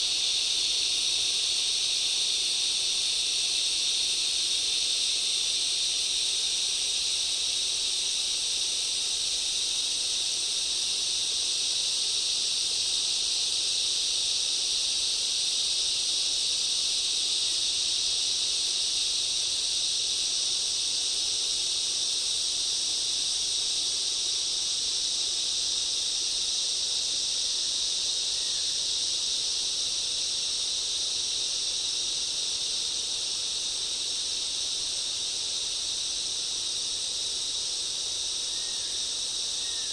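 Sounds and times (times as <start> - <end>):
forest insects droning: 0.0 - 39.9.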